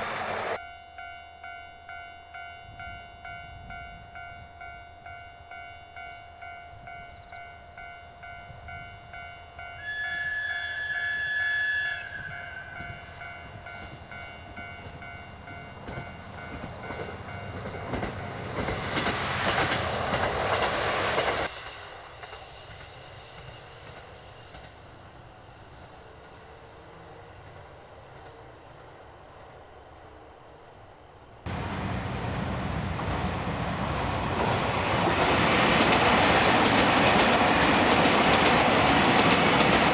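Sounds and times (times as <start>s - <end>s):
train passing with rumble: 0.0s - 39.9s
train horn: 9.7s - 13.6s.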